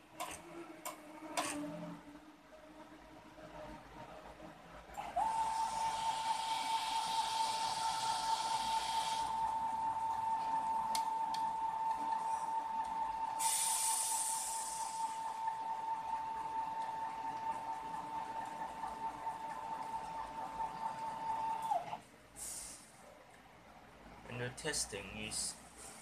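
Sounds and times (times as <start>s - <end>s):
hiss: 5.4s - 9.3s, 13.4s - 15.2s, 22.4s - 22.9s.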